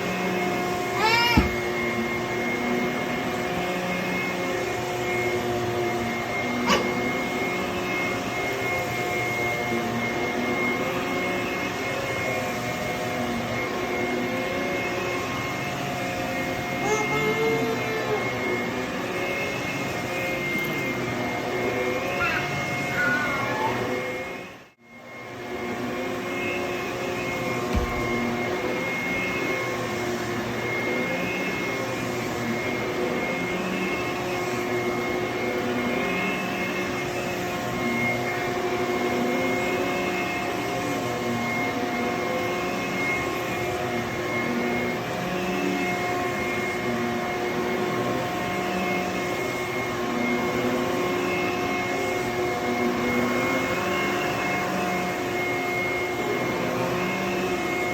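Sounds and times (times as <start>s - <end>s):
vacuum cleaner on carpet: 0.0s - 57.9s
low thump: 27.7s - 28.4s.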